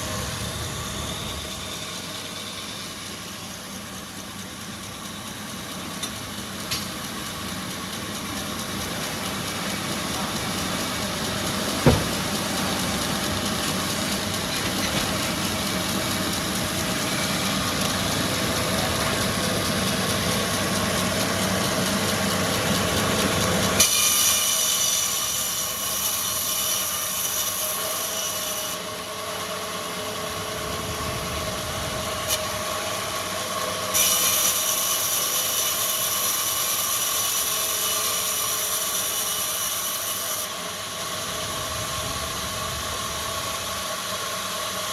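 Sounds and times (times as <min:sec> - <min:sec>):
factory machinery running: 0:00.0 - 0:44.9
hissing machine noise: 0:00.0 - 0:44.9.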